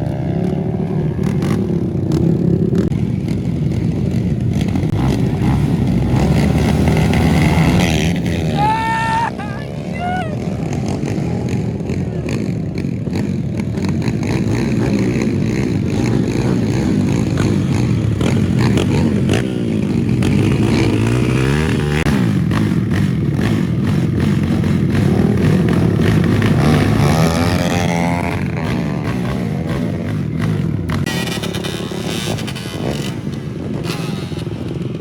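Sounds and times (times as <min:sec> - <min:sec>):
motorcycle engines revving: 0:00.0 - 0:35.0.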